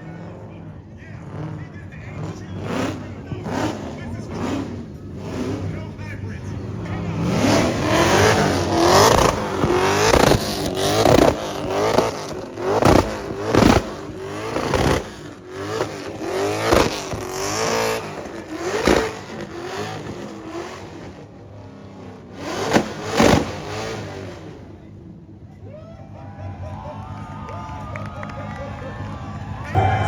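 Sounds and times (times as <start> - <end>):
car engine revving: 0.0 - 25.5, 28.9 - 30.0
exhaust cracks: 1.6 - 21.4, 22.2 - 24.8.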